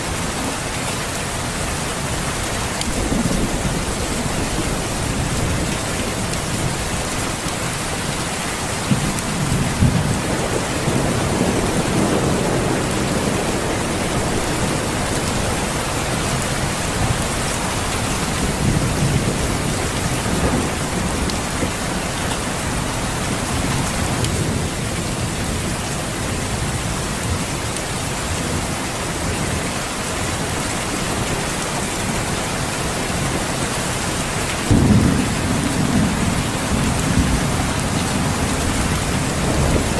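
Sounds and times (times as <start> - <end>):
steady rain falling: 0.0 - 39.9
low thunder rumbling: 2.8 - 7.4, 8.7 - 27.5, 33.1 - 39.9.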